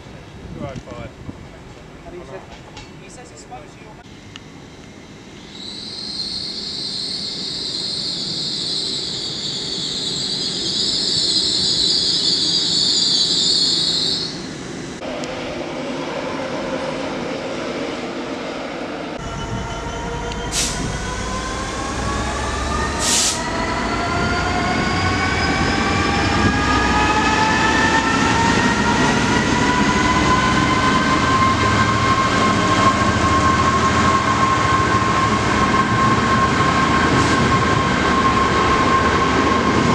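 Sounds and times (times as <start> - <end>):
train whining tones rising: 4.0 - 39.9
train wheels squealing: 5.3 - 14.6, 19.2 - 21.9, 22.5 - 39.9.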